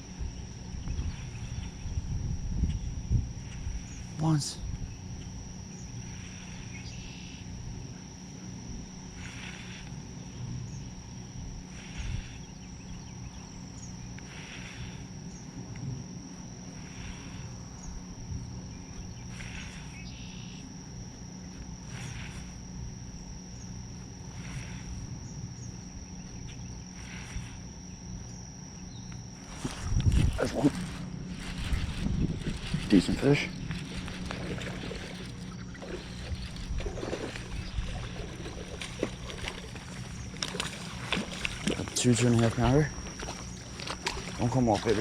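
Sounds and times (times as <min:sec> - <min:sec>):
high-pitched whine: 0:00.0 - 0:45.0
low steady rumble: 0:00.0 - 0:45.0
soft raspy pulse: 0:00.0 - 0:45.0.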